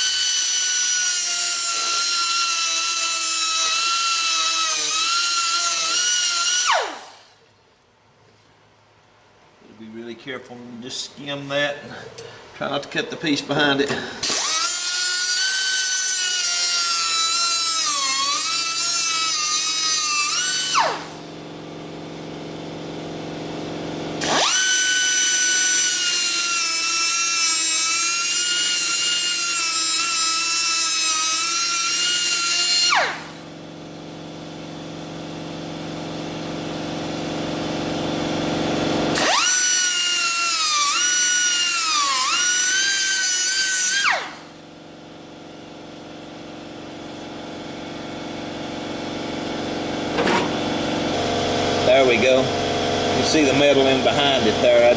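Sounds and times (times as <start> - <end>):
angle grinder cutting sheet steel: 0.0 - 7.2, 14.2 - 21.2, 24.2 - 33.4, 39.1 - 44.5.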